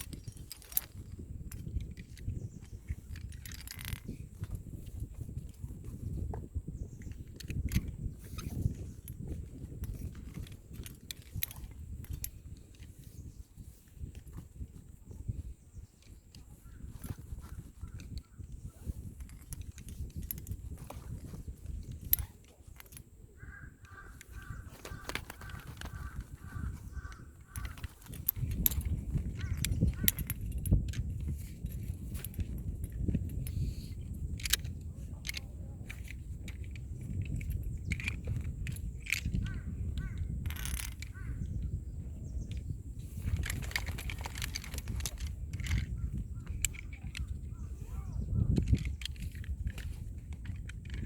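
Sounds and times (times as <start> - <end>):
climbing hardware clinking: 0.0 - 51.0
crow-like bird harsh calls: 23.4 - 27.9
sharp clicks and knocks: 23.8 - 33.6.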